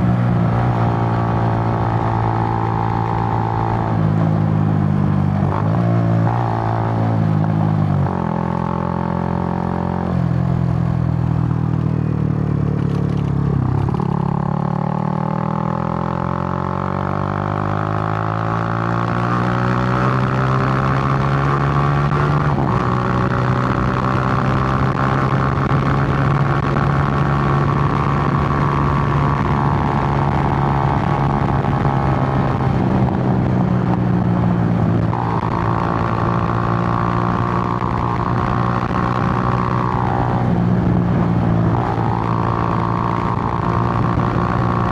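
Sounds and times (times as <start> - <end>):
motorcycle engine running: 0.0 - 44.9
wind rush on microphone: 19.0 - 44.9.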